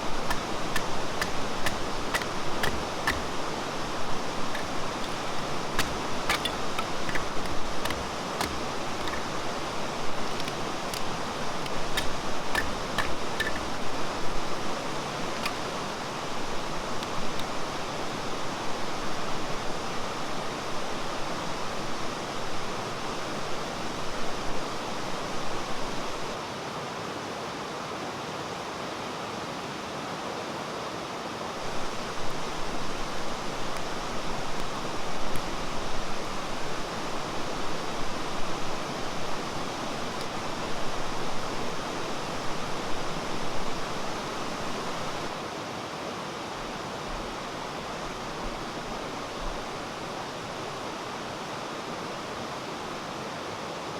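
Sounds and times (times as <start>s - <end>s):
sharp light clicks: 0.0s - 17.7s
stream rushing over rocks: 0.0s - 53.9s.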